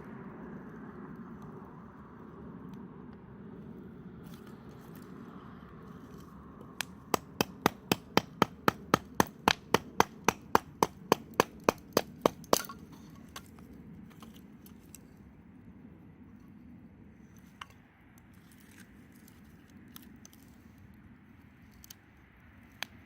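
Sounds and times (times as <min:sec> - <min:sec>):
fast sharp knocks: 0:07.0 - 0:12.8.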